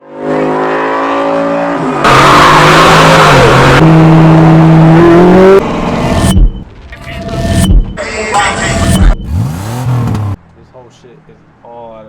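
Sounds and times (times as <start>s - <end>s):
car engine revving hard: 0.2s - 5.6s, 8.6s - 10.4s.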